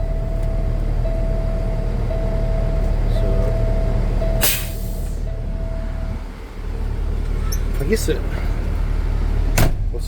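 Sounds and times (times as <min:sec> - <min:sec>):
pulsing warning tone: 0:00.0 - 0:06.6
truck diesel engine idling: 0:00.0 - 0:10.0
air brake hiss: 0:04.4 - 0:05.2.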